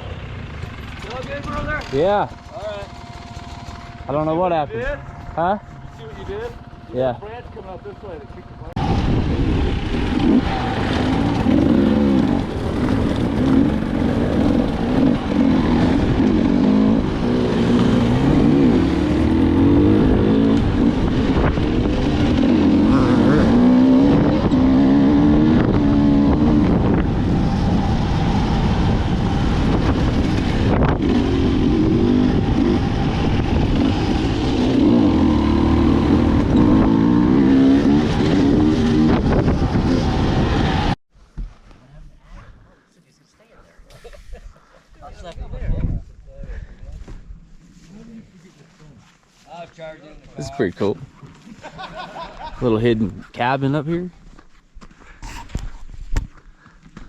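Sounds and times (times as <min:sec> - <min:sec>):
dirt bike engine revving: 0:00.0 - 0:07.7, 0:08.8 - 0:41.0.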